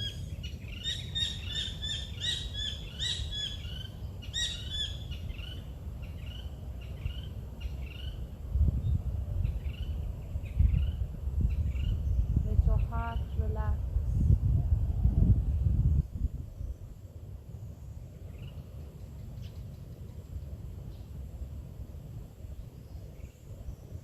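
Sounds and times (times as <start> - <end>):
birds chirping: 0.0 - 8.3.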